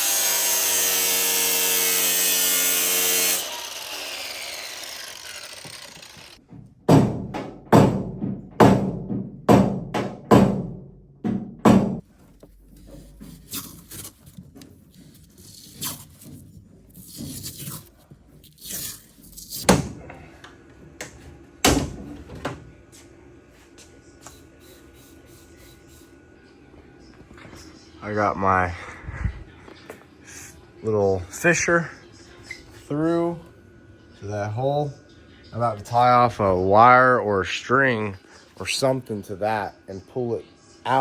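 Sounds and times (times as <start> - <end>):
hard knocks on truck body: 6.8 - 12.0.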